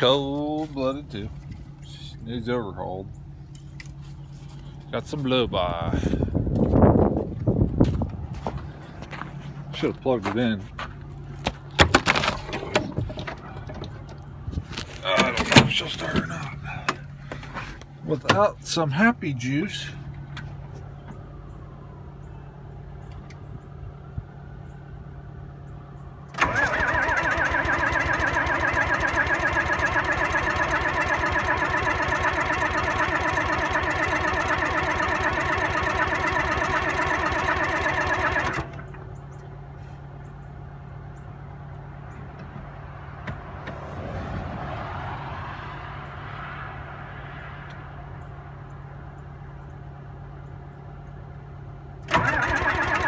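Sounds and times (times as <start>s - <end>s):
starter cranking truck engine: 26.3s - 39.5s, 52.0s - 53.0s.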